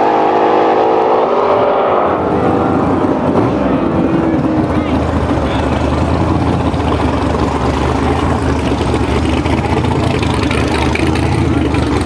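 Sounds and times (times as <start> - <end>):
race car engine idling: 2.0 - 12.0.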